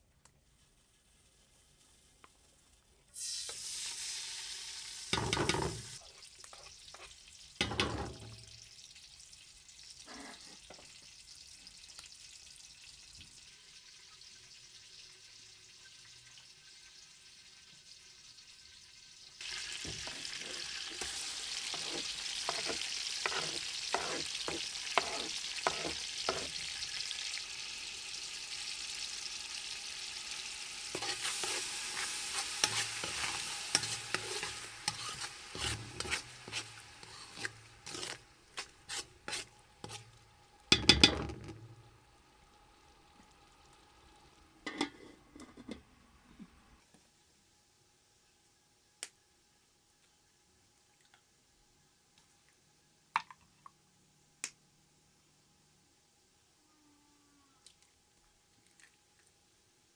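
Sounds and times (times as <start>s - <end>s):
food sizzling in a pan: 0.0s - 47.2s.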